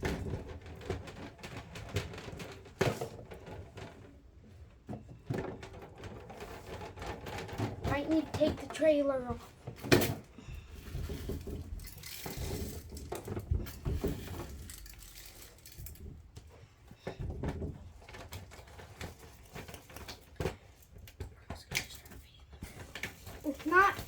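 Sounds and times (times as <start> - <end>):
plastic toys clicking and knocking: 0.0 - 24.0.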